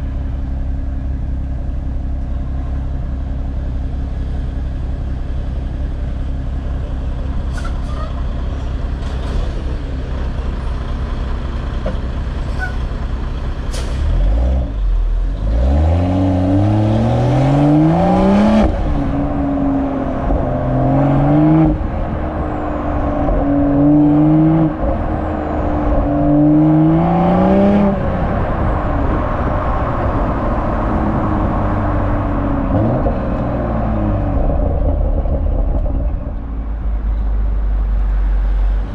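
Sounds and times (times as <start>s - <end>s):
car exhaust revving: 14.1s - 38.9s.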